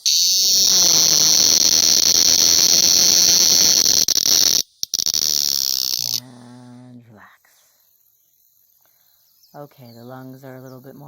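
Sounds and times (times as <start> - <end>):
cicada buzzing: 0.0 - 6.8.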